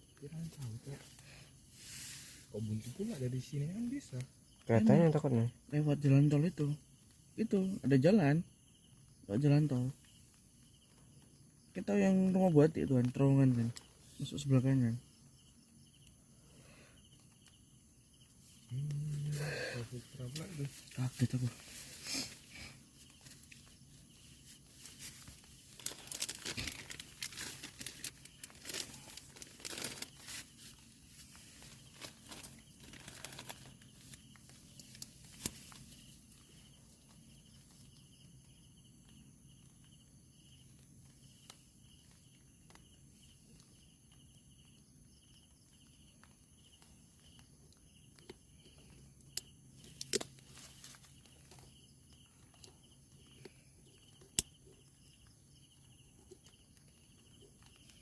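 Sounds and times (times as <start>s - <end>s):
high-pitched insect trill: 0.0s - 58.0s
crinkling and rustling: 19.8s - 38.4s, 48.2s - 58.0s.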